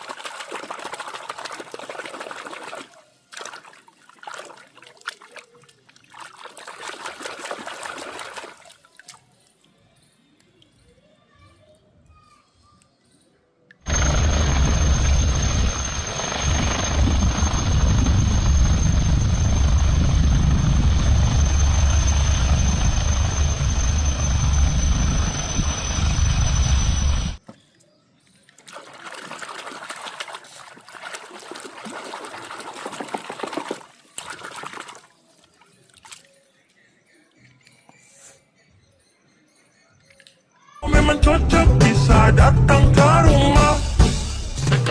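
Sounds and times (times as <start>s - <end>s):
water spraying: 0.0s - 9.6s, 28.6s - 36.2s
uneven water sounds: 0.0s - 10.8s, 27.6s - 37.9s
thin high whine: 13.9s - 27.4s.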